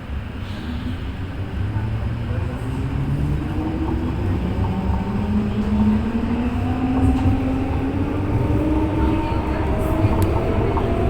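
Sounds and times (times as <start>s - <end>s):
tram motors whining: 0.0s - 11.0s
tram rail rumble: 0.0s - 11.0s.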